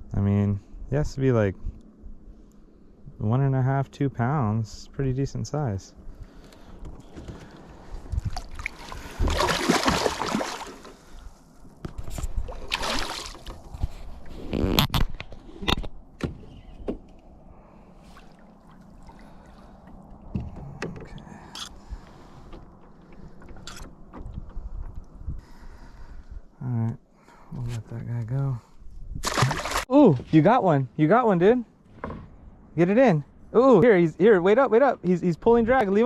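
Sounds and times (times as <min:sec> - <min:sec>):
water splashing: 0:08.1 - 0:11.1, 0:12.2 - 0:13.7, 0:18.0 - 0:20.3, 0:29.2 - 0:29.9.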